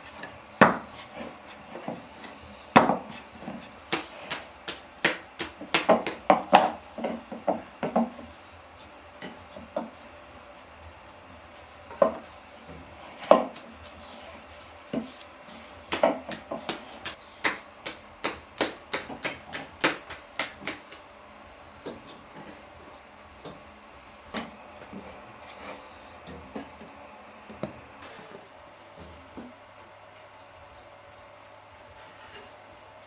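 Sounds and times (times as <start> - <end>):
knife chopping on wooden board: 3.9 - 6.4, 15.9 - 21.0.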